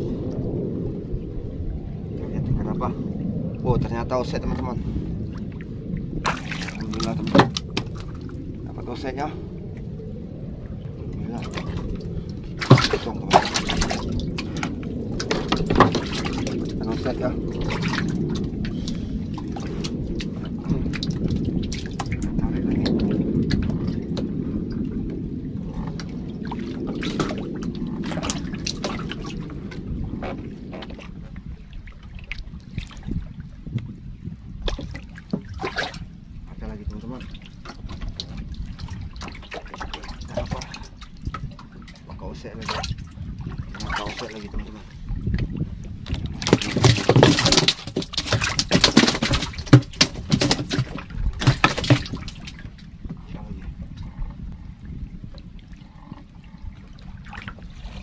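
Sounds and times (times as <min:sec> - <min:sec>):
lapping waves: 0:00.0 - 0:58.0
wind rumble: 0:00.0 - 0:58.0
water dripping and splashing: 0:03.5 - 0:10.0, 0:10.6 - 0:58.0
fish flapping in wooden boat: 0:06.2 - 0:08.3, 0:11.4 - 0:24.3, 0:26.6 - 0:29.6, 0:45.4 - 0:54.4.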